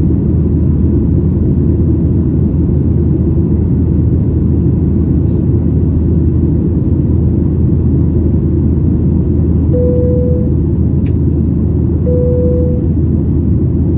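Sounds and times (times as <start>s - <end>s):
airplane cabin engine rumble: 0.0s - 13.9s
short steady tones: 9.8s - 10.6s, 12.1s - 12.9s.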